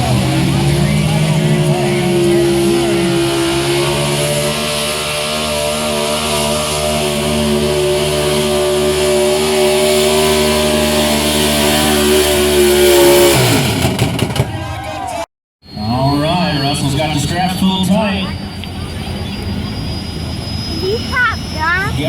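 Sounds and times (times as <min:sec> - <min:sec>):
engine at high revs under load: 0:00.0 - 0:14.4.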